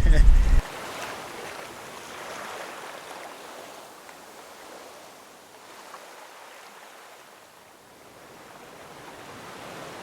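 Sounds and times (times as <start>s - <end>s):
wind noise: 0.0s - 0.7s
sea water rushing: 0.0s - 3.8s.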